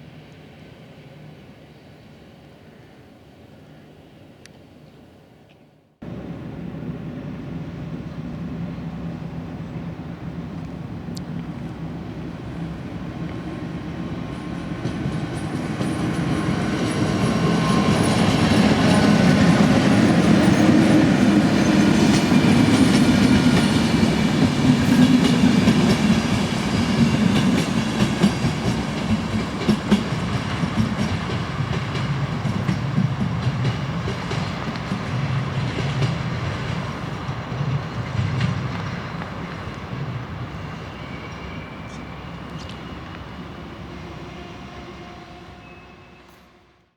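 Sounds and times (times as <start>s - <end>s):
train passing on rails: 0.0s - 5.4s, 6.0s - 46.9s
wheels clacking over rail joints: 14.3s - 40.2s.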